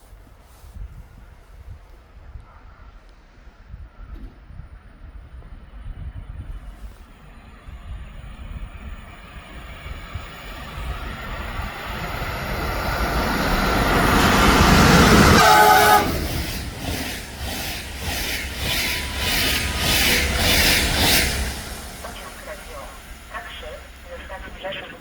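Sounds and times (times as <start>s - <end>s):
train passing at speed: 0.0s - 25.0s
train horn blast: 15.1s - 16.4s.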